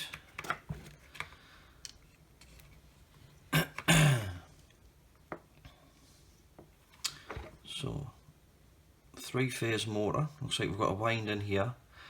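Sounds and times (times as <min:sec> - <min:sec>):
man clearing his throat: 0:03.6 - 0:04.5.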